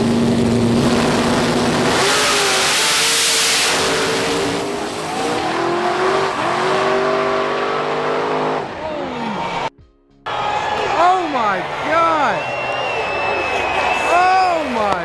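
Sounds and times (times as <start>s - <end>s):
car engine revving hard: 0.0s - 9.7s.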